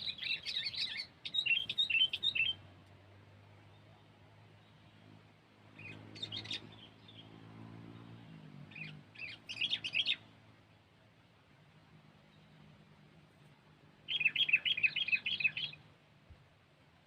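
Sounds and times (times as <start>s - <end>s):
bird chirping: 0.0s - 2.7s, 3.6s - 10.3s, 14.0s - 15.9s.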